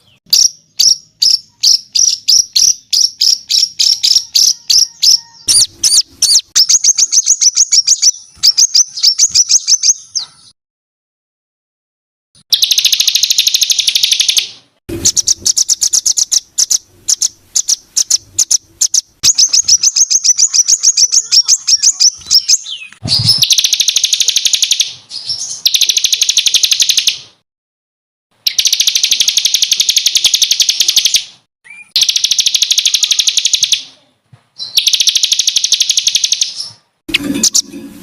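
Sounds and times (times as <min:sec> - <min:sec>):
sharp bird chirps: 0:00.0 - 0:10.6, 0:12.4 - 0:27.4, 0:28.4 - 0:33.9, 0:34.6 - 0:37.7
songbird rapid trills: 0:12.5 - 0:24.9, 0:31.9 - 0:33.8.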